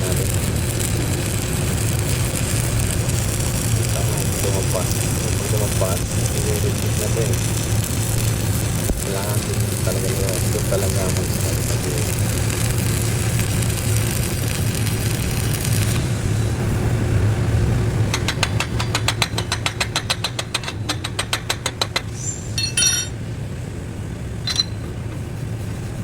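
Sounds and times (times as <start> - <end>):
welding arc crackling and hissing: 0.0 - 23.0
sharp metallic taps: 18.1 - 23.1, 24.4 - 24.8
low machine hum: 22.3 - 26.0
metal clinks: 22.6 - 23.2, 24.4 - 25.0.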